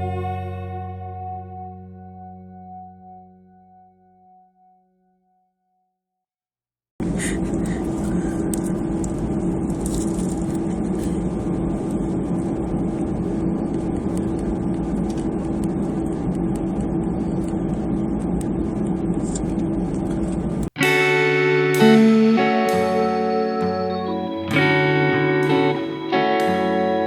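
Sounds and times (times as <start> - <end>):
jet engines heard inside cabin: 7.0 - 20.8
low steady hum: 7.0 - 27.0.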